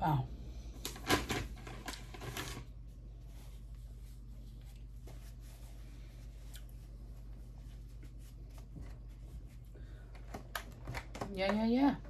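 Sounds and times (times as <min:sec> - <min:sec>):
steady low hum: 0:00.0 - 0:12.0
soft chewing mouth sounds: 0:04.5 - 0:05.0, 0:06.3 - 0:07.0.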